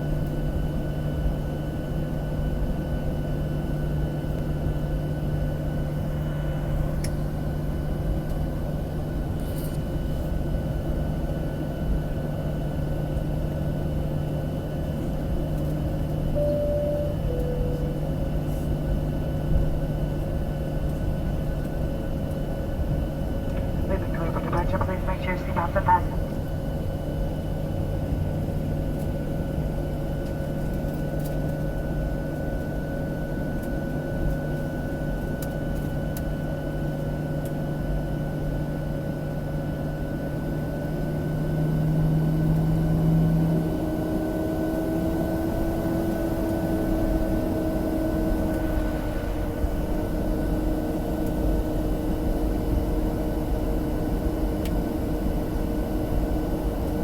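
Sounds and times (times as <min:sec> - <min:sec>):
airplane cabin engine hum: 0:00.0 - 0:37.2, 0:37.8 - 0:57.0.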